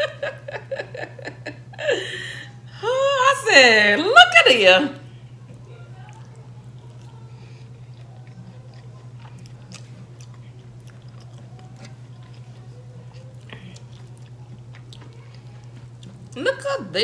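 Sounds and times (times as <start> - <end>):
steady low hum: 0.0 - 17.0
person chewing food: 5.5 - 16.4.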